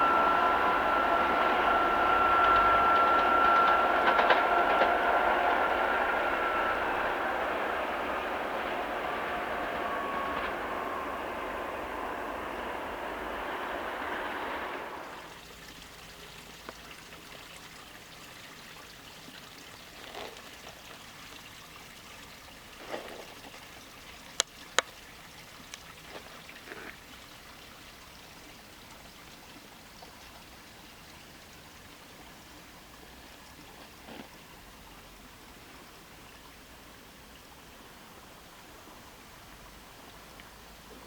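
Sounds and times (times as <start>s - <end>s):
train passing: 0.0s - 16.2s.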